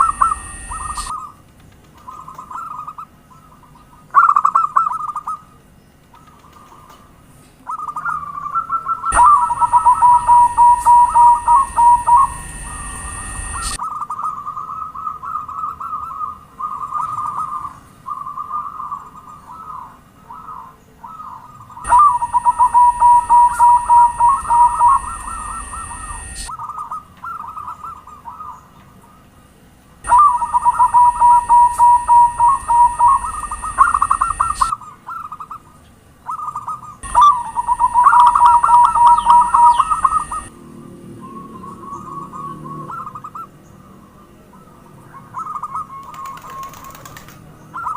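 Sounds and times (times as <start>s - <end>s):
steady high hiss: 0.0s - 1.1s, 9.1s - 13.8s, 21.8s - 26.5s, 30.0s - 34.7s, 37.0s - 40.5s
dove cooing: 0.0s - 1.4s, 7.7s - 28.6s, 30.0s - 35.4s, 36.3s - 40.5s, 45.2s - 47.9s.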